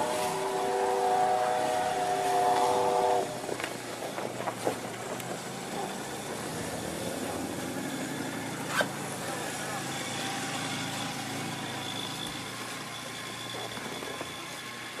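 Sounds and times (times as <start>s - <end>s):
steam whistle chord: 0.0s - 3.4s.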